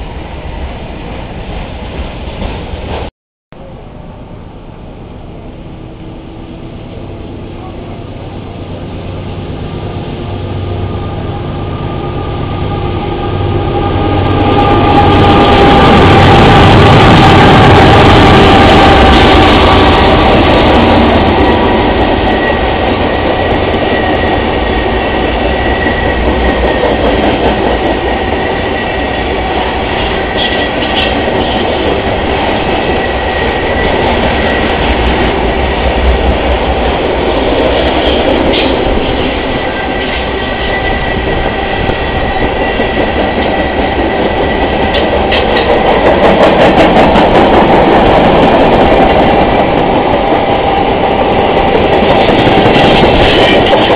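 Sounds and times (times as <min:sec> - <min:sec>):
freight train cars rolling on rails: 0:00.0 - 0:53.9
train wheel squeals: 0:37.8 - 0:45.7.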